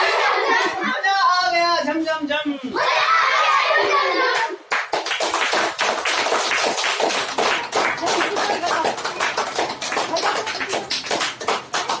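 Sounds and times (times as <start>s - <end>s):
group applauding: 4.3s - 12.0s.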